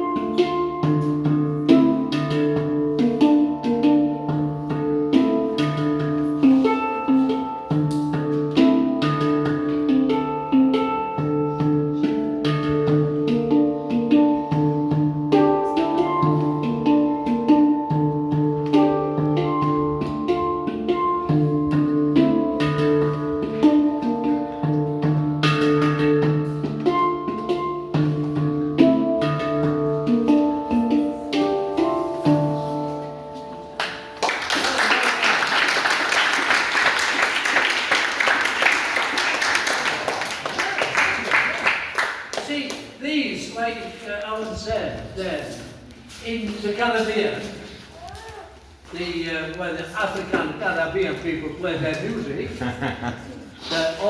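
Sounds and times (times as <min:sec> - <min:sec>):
handpan melody: 0:00.0 - 0:34.5
applause: 0:33.8 - 0:42.9.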